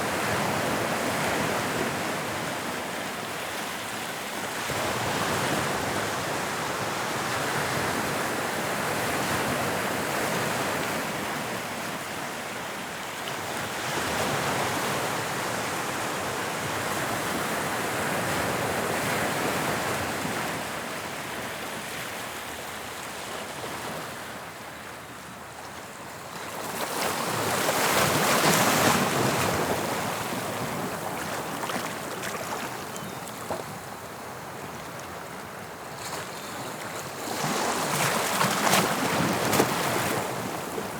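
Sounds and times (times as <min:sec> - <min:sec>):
waves breaking on shore: 0:26.5 - 0:35.3.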